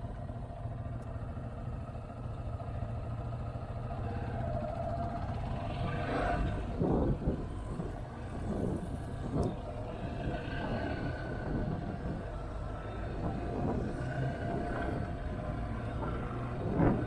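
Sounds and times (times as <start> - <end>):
wind rushing over microphone: 5.1 - 17.0.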